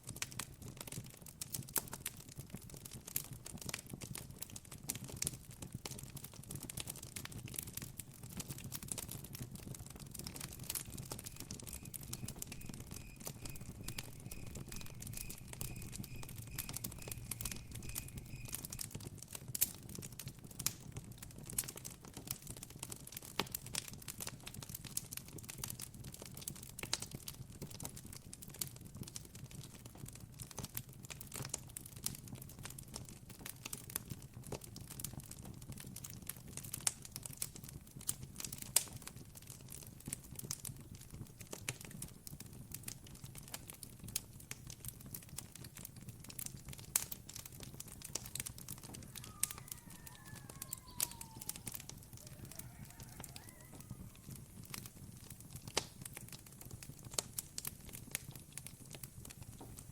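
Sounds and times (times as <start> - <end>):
campfire crackling and popping: 0.0 - 59.9
faint animal call: 10.4 - 18.9, 48.6 - 54.8.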